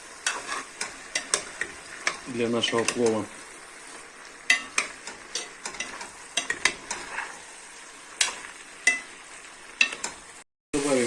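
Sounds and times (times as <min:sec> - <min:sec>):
food sizzling in a pot: 0:00.0 - 0:11.0
utensil scraping a pot: 0:00.2 - 0:07.6.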